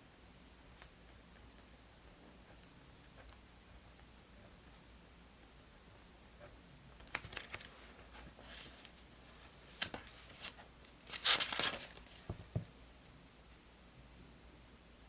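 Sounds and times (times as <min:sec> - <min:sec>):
paper crinkling: 0:07.0 - 0:09.0, 0:09.7 - 0:12.3
paper ripping: 0:11.1 - 0:12.1.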